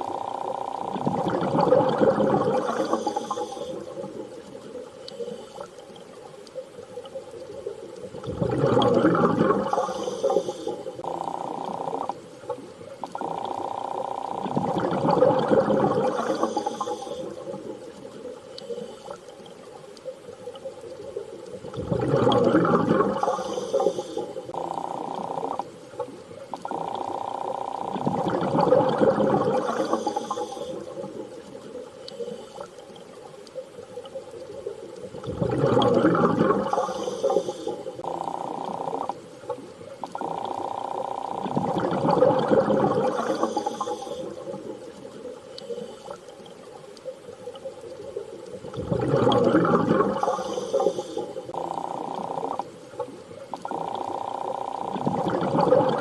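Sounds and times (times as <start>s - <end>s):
underwater swell of water: 41.4s - 54.0s.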